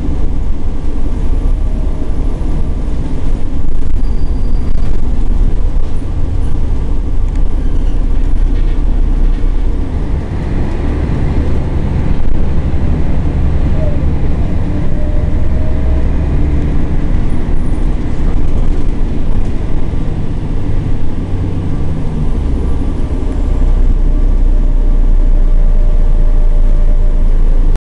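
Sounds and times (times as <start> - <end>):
bus diesel engine droning: 0.0 - 27.8.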